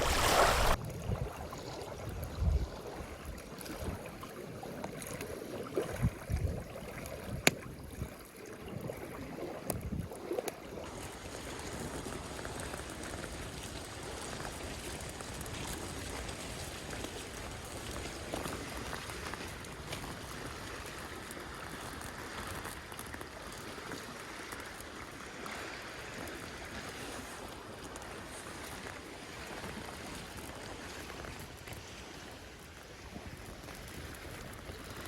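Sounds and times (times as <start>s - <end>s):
wind gusting on microphone: 0.0s - 3.2s
water lapping against rocks: 0.0s - 35.0s.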